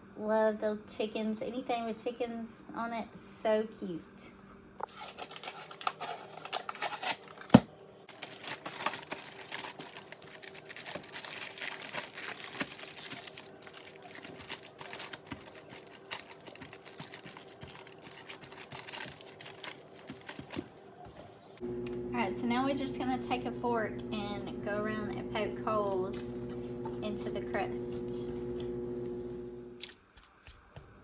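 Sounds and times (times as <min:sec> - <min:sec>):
parchment paper crinkling: 0:04.8 - 0:29.9
faint steady hum: 0:21.6 - 0:29.8.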